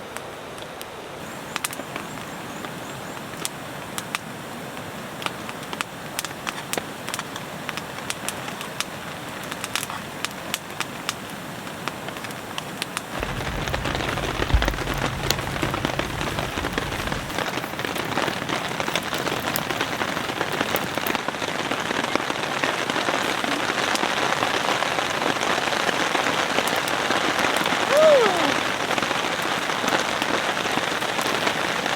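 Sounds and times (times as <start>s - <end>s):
rain falling: 0.0s - 31.9s
low rumble: 13.2s - 17.4s.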